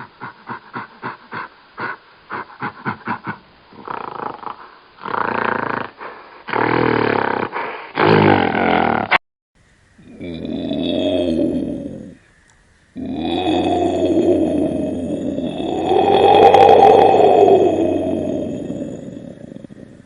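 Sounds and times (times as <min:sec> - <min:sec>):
large animal grunting and roaring: 0:10.0 - 0:12.2, 0:13.0 - 0:20.0.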